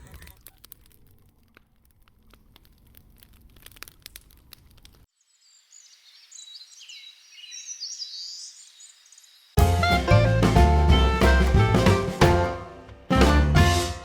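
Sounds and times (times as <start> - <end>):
faint crackling clicks: 0.0 - 5.1
birds singing: 5.3 - 9.6.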